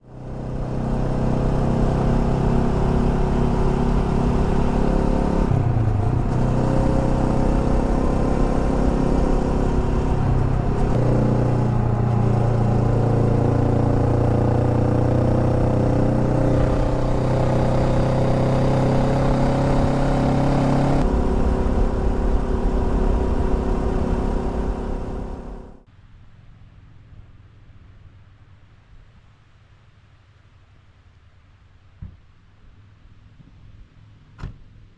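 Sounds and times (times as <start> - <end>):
motorcycle engine running: 0.1 - 25.8.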